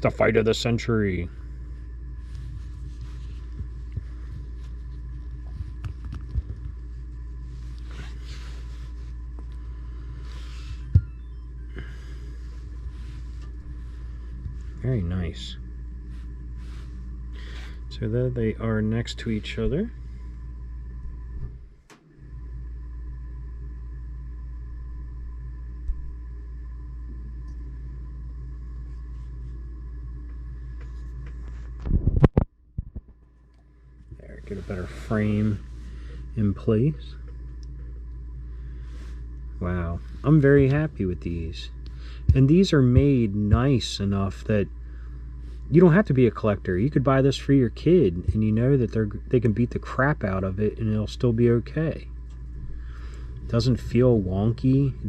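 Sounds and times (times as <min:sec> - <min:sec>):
faint sustained tones: 0:00.0 - 0:31.9, 0:33.4 - 0:55.0
steady low hum: 0:00.0 - 0:55.0
steady low rumble: 0:00.0 - 0:55.0.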